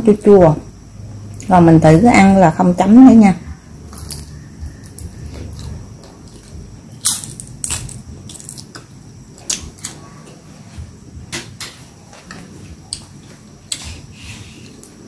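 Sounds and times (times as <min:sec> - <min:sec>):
crunching and chewing: 0:03.9 - 0:10.0.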